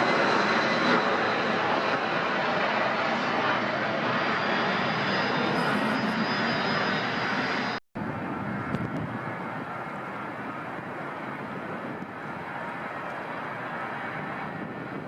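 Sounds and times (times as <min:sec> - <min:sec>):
airliner engines rumbling: 0:00.0 - 0:15.0.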